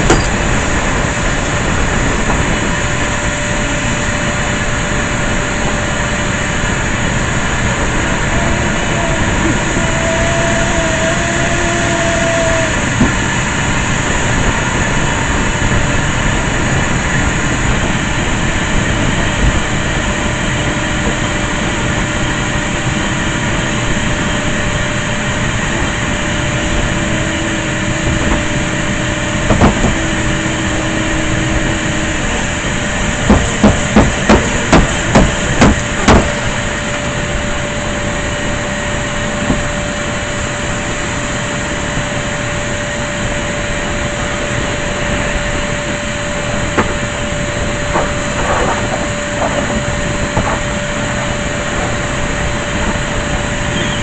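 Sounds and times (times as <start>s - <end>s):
vacuum cleaner running: 0.0s - 54.0s
sharp knocks: 33.3s - 36.3s.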